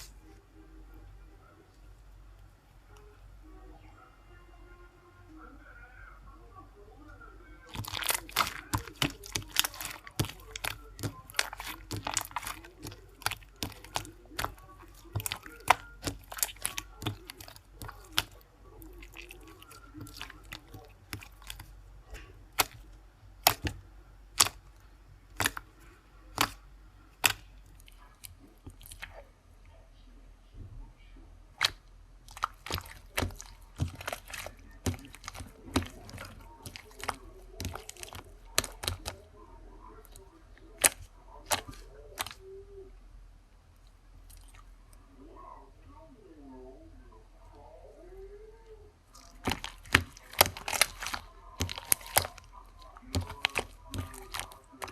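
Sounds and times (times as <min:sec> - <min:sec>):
quiet crackling: 0:00.0 - 0:54.9
sharp clicks and crunches: 0:07.7 - 0:29.2, 0:31.6 - 0:39.3, 0:40.0 - 0:42.4, 0:49.1 - 0:54.9.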